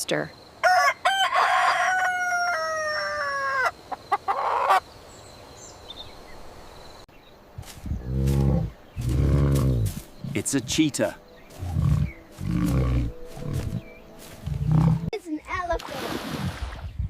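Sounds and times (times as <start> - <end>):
rooster crowing: 0.6 - 4.8.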